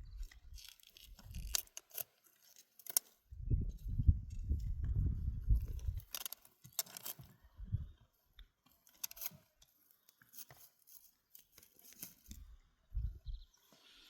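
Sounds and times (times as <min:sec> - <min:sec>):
crisp snipping and tearing: 0:00.2 - 0:03.2.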